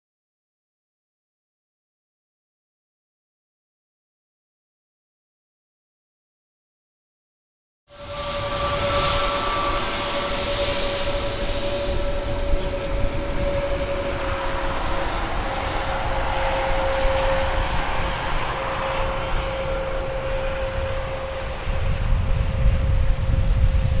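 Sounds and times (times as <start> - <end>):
airliner engines droning: 7.9 - 24.0
wind buffeting microphone: 8.0 - 24.0.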